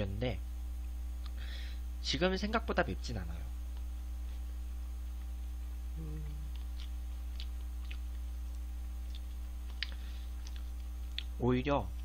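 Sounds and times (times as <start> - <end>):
closed-mouth hum: 0.0 - 12.0
low electrical hum: 0.0 - 12.0
person chewing noodles: 6.2 - 11.4.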